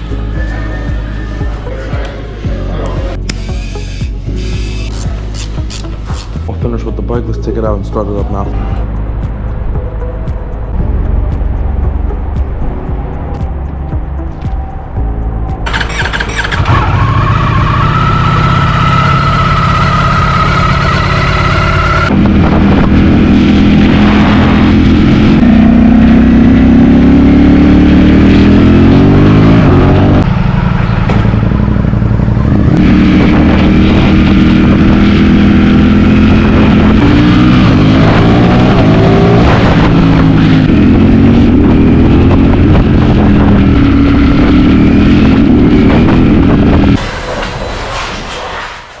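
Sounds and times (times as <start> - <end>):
motorcycle engine revving: 15.6 - 47.6.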